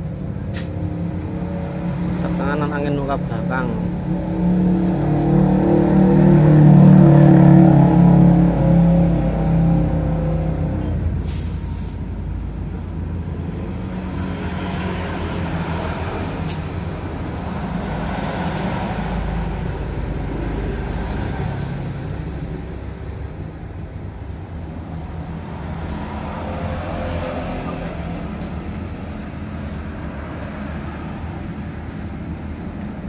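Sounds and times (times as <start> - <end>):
compressed air hiss: 11.2 - 12.3.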